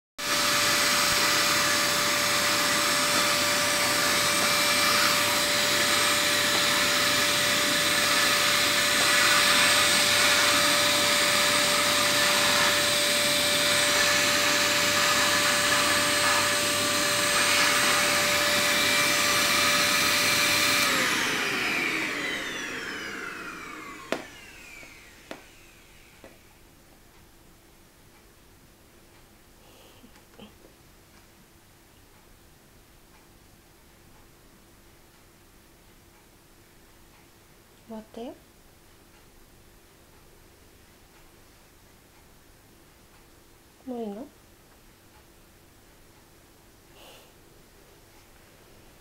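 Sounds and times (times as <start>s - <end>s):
vacuum cleaner running: 0.2s - 26.6s.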